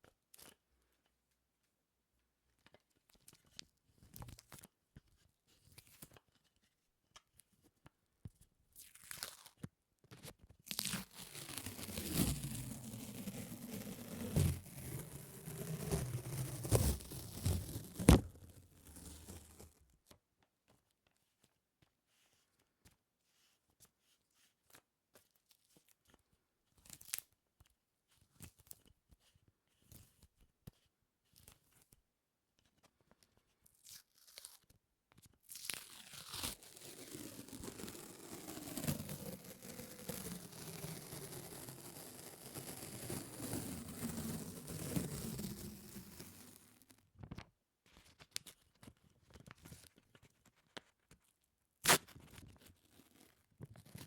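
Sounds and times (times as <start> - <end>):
sticky peeling and crackling: 10.7 - 19.6, 35.7 - 46.4.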